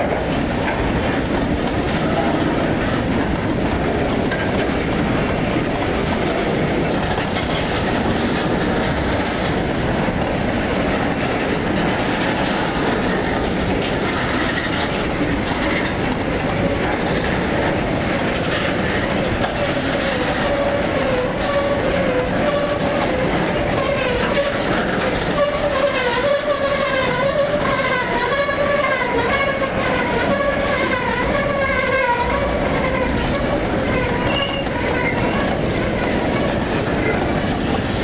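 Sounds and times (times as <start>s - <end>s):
freight train wheels clattering: 0.0s - 38.0s
faint wheel squeal: 34.0s - 36.2s.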